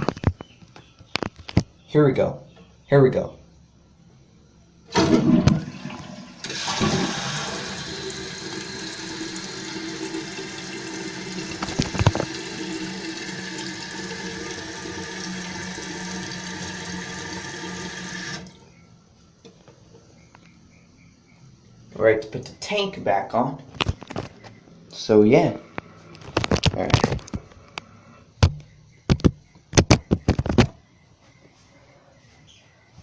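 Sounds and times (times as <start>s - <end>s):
toilet flushing water rushing: 4.9s - 18.6s.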